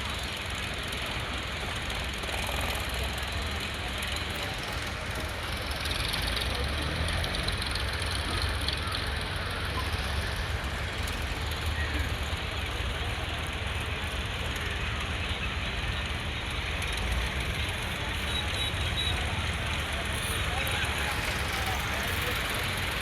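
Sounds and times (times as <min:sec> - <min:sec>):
tractor diesel engine rumbling: 0:00.0 - 0:23.0.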